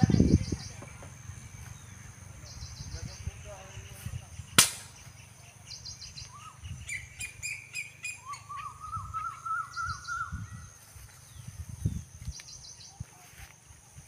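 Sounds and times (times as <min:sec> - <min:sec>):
small birds chirping: 0:00.0 - 0:14.0
high bird trills: 0:01.7 - 0:10.7.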